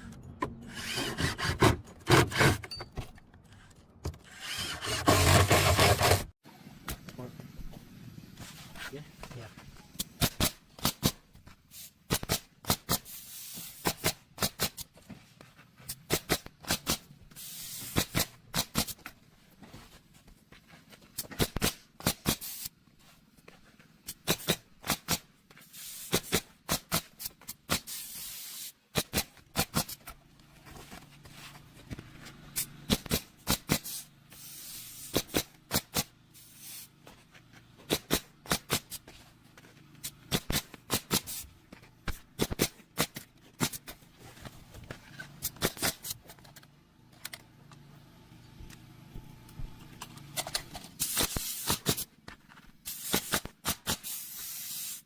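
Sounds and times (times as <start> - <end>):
nail gun firing: 4.4 - 6.2, 34.9 - 36.1, 37.9 - 39.0, 40.3 - 41.4, 51.0 - 52.1, 52.9 - 55.0
air hiss: 27.7 - 28.8, 33.7 - 35.2, 52.9 - 55.0.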